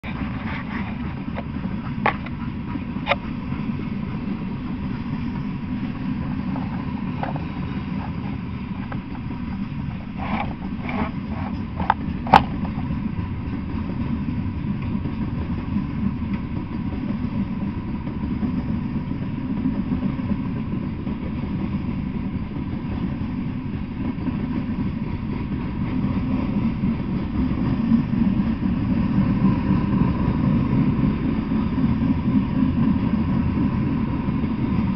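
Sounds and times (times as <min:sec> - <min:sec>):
train wheels rumbling on rails: 0:00.0 - 0:34.9.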